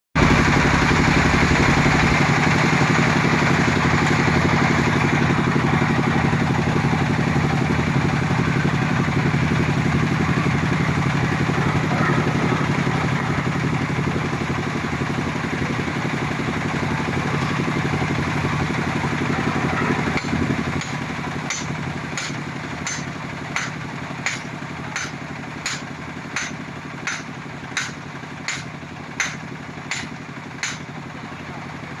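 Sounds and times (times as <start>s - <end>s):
drill rig engine running: 0.2s - 32.0s
sampler hammering into ground: 20.2s - 31.0s.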